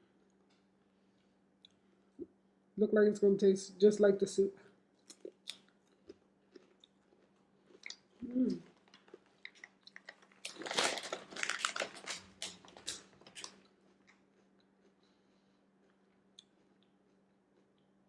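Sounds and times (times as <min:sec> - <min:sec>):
crunchy snack chewing: 0:05.0 - 0:15.2.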